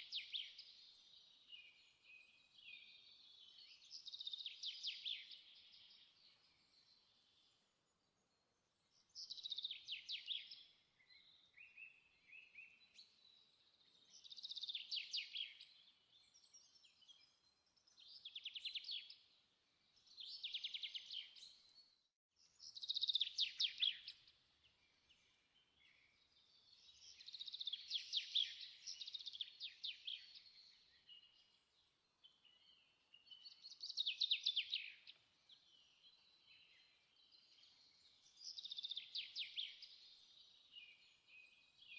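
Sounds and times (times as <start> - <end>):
songbird singing trills: 22.6 - 24.3, 25.0 - 41.9.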